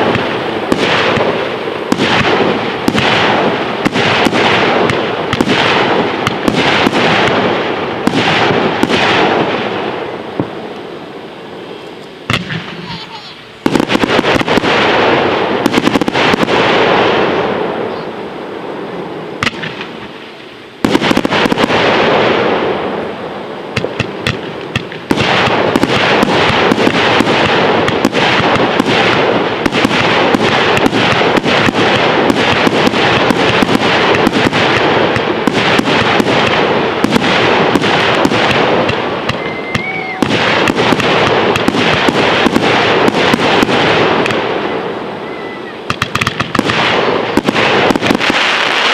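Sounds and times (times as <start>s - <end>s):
fireworks bangs: 0.0s - 48.9s
fireworks crackling barrage: 0.0s - 48.9s.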